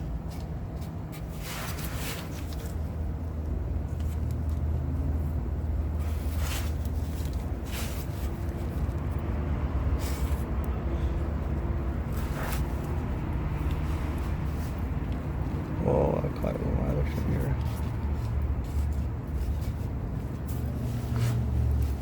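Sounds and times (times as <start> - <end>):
short rustling noises: 0.1 - 3.0, 5.9 - 9.0, 11.9 - 15.9
vehicle engine idling: 2.5 - 22.0.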